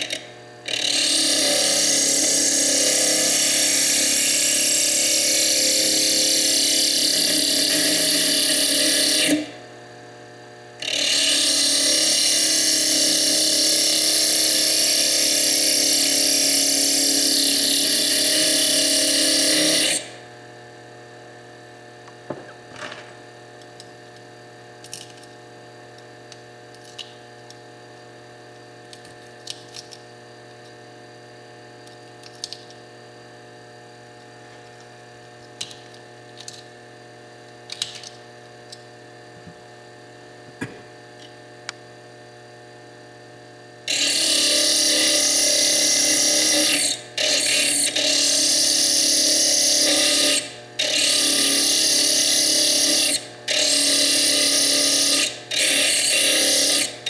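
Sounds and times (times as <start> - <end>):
disc grinding into stone: 43.9 - 57.0.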